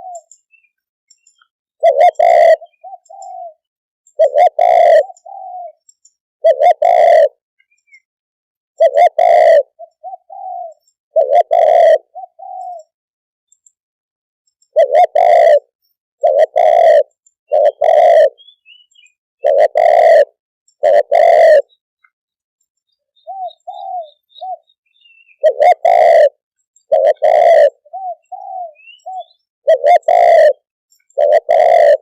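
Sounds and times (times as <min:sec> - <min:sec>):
dove cooing: 0:00.0 - 0:00.4, 0:01.8 - 0:08.0, 0:08.8 - 0:13.0, 0:14.7 - 0:21.8, 0:23.2 - 0:32.0.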